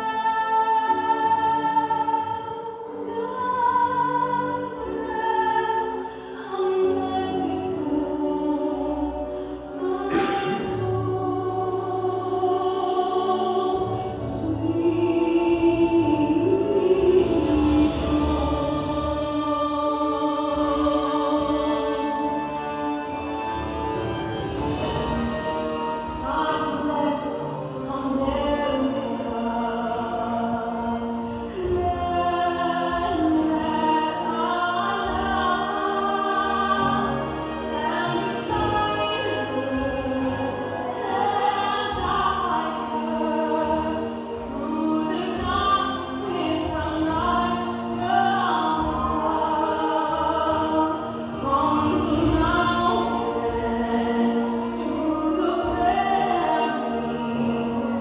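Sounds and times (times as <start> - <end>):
choir singing long held notes: 0.0 - 58.0
musical accompaniment: 0.0 - 58.0.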